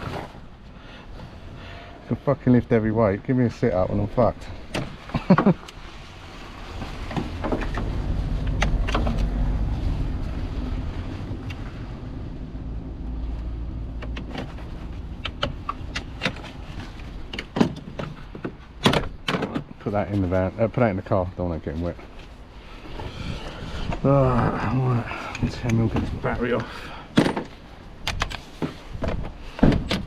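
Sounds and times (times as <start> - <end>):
clicks and knocks of car work: 4.7 - 5.8, 13.9 - 19.8, 27.1 - 30.0
passing vehicle rumble: 6.0 - 16.2.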